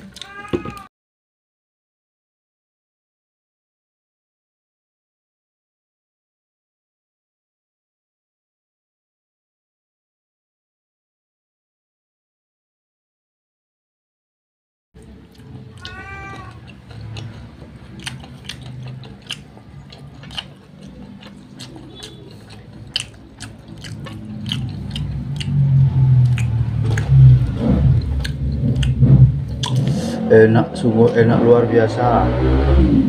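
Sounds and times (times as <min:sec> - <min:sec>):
short high meow-like call: 0:00.2 - 0:00.9, 0:15.8 - 0:16.5
chewing crispy fried chicken: 0:15.0 - 0:30.2
low hum: 0:21.0 - 0:33.0.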